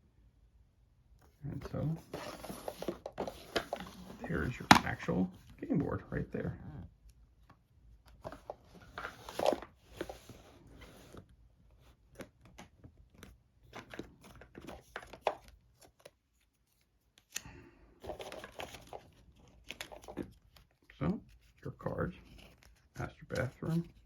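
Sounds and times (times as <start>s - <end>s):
game pieces rustling and crinkling: 1.6s - 5.8s, 8.2s - 11.3s, 18.0s - 24.0s.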